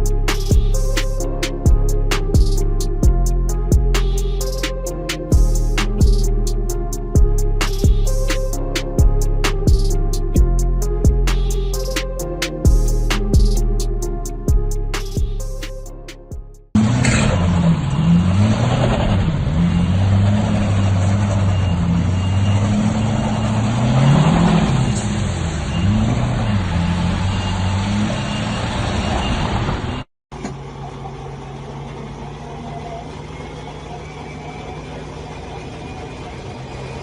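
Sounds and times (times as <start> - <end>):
engine idling: 0.0 - 18.5, 30.3 - 37.0
heavy vehicle engine revving: 0.0 - 37.0.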